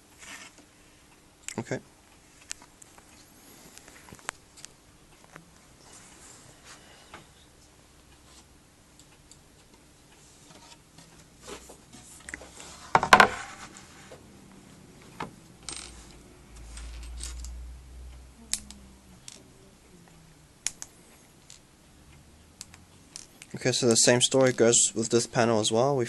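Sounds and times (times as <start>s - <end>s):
panels and hardware clicking: 6.6s - 14.3s, 20.6s - 25.5s.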